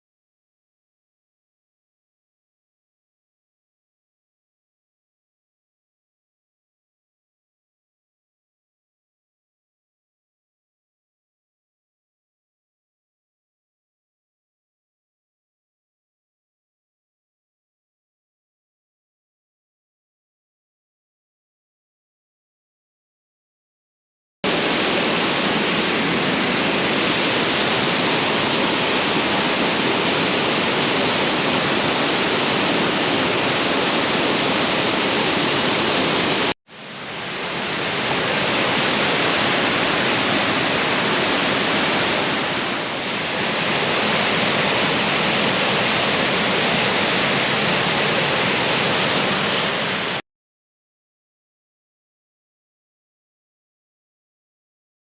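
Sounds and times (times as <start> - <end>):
waterfall pouring over rocks: 24.5 - 50.2.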